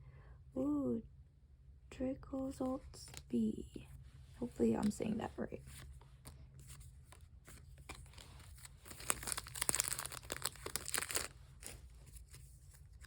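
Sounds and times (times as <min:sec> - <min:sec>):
foil wrapper crinkling and tearing: 0:07.1 - 0:13.0.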